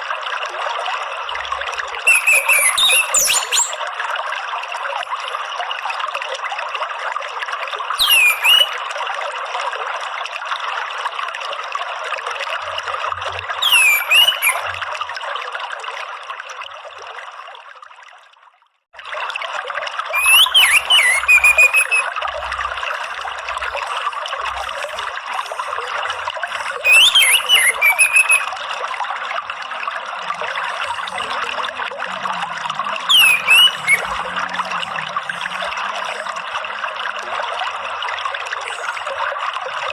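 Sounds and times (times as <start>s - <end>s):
water trickling: 0.0s - 39.9s
thrush giving sharp calls: 2.1s - 3.8s, 8.0s - 8.7s, 13.6s - 14.7s, 20.2s - 22.2s, 26.5s - 28.5s, 33.0s - 34.3s.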